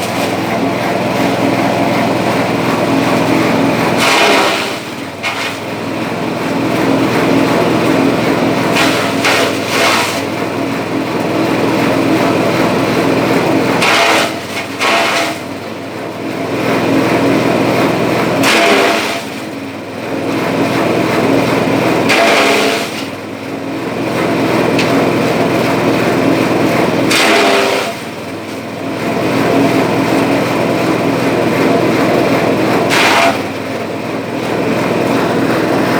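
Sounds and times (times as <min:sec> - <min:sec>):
blades chopping grass: 0:00.0 - 0:10.4, 0:11.1 - 0:15.5, 0:18.4 - 0:19.5, 0:21.1 - 0:23.2, 0:24.1 - 0:35.9
grass chopper engine running: 0:00.0 - 0:35.9.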